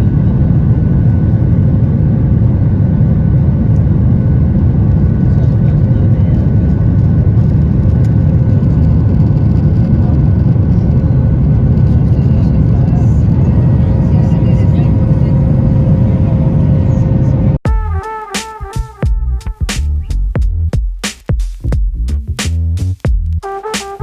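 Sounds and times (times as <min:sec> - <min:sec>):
airliner cabin rumble: 0:00.0 - 0:18.0.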